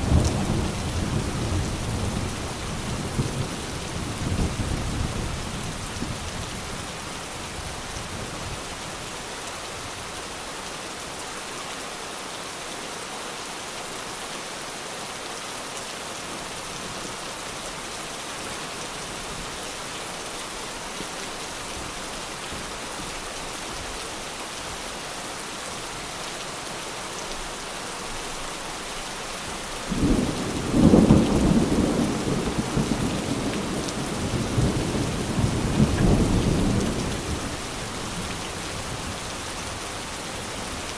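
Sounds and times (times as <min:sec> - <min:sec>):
steady rain hissing: 0:00.0 - 0:40.9
low roll of thunder: 0:29.9 - 0:37.5.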